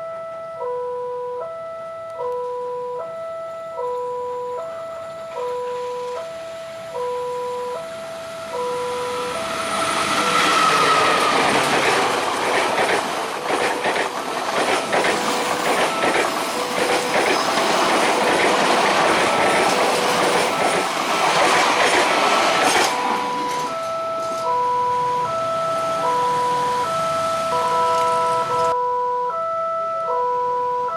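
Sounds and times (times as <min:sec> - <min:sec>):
crossing warning chime: 0:00.0 - 0:30.9
train wheels clattering on rails: 0:07.0 - 0:28.7.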